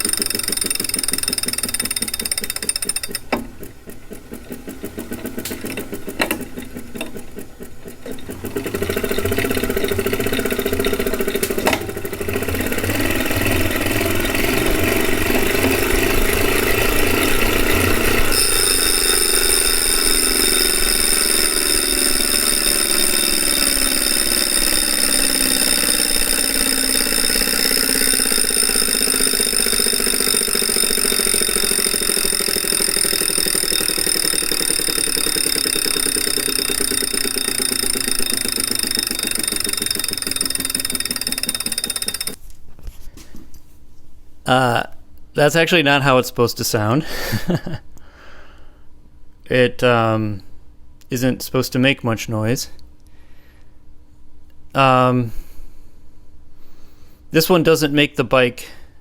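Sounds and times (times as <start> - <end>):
clicking: 0.0 - 11.9, 17.2 - 42.4
flywheel whirr and whine: 0.0 - 42.5.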